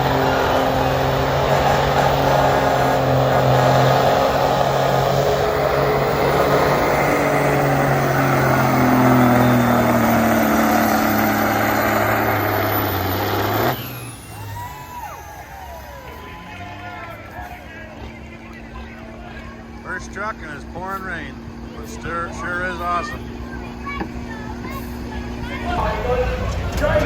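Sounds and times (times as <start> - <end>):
diesel truck engine at full throttle: 0.0 - 27.0.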